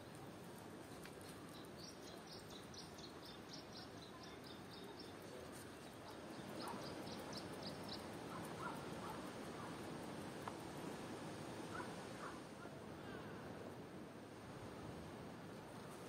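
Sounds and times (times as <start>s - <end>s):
low background noise: 0.0s - 16.0s
small bird chirping: 0.9s - 9.9s.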